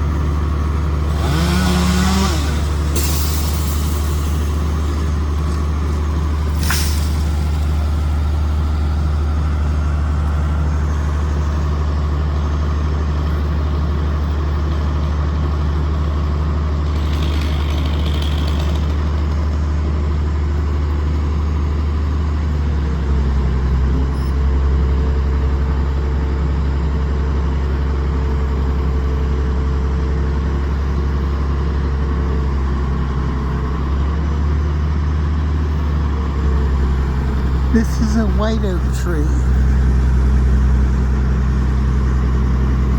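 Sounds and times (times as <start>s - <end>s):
truck engine running: 0.0s - 21.0s, 35.7s - 42.9s.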